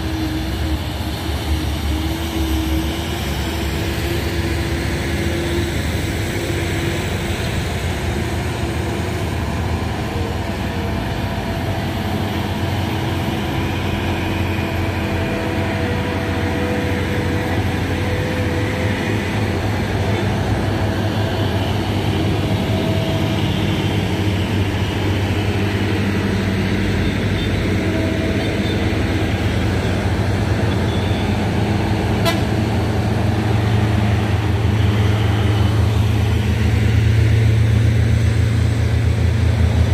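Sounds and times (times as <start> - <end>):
truck diesel engines rumbling: 0.0 - 39.9
truck horns: 26.0 - 33.9.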